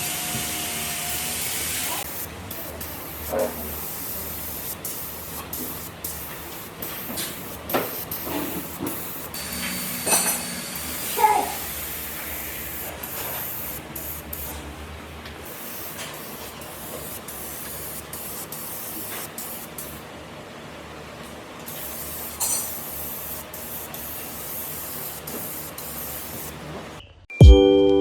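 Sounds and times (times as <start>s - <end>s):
compressed-air spray gun hissing: 0.0s - 14.6s, 15.4s - 20.1s, 21.6s - 26.7s.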